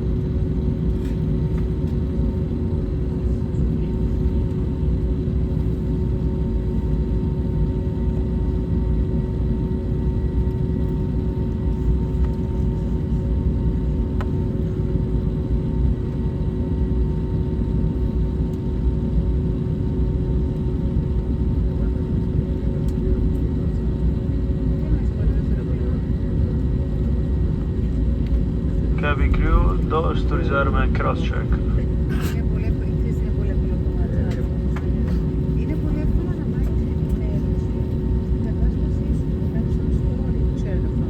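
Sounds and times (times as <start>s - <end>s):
aircraft cabin rumble: 0.0s - 41.0s
idling jet engines hum: 0.0s - 41.0s.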